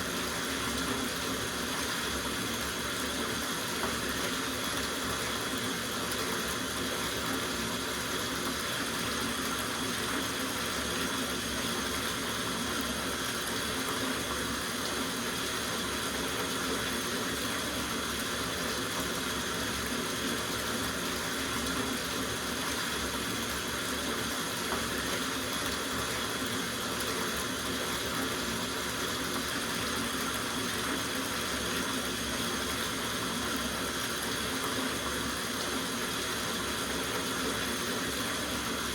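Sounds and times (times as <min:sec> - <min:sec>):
tap running into bathtub: 0:21.4 - 0:38.9.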